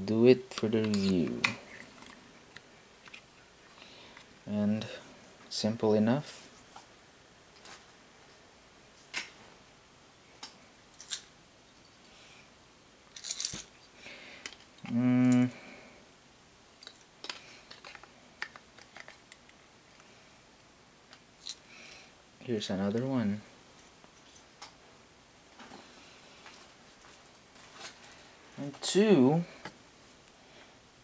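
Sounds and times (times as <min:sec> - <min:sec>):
man humming: 0:14.8 - 0:15.7
plastic parts clicking: 0:16.8 - 0:20.0.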